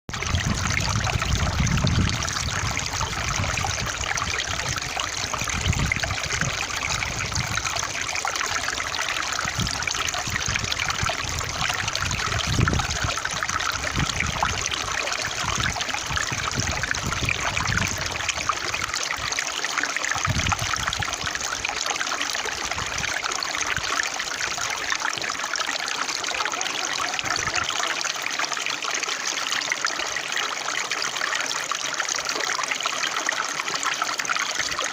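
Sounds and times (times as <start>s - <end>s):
water trickling in a stream: 0.1s - 34.9s.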